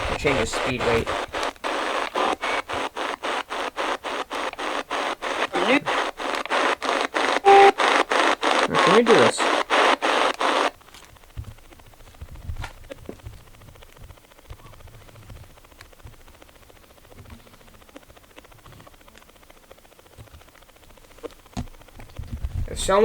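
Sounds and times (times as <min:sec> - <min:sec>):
radio static chopping: 0:00.0 - 0:23.0
faint clicks and thumps of handling: 0:10.3 - 0:22.8.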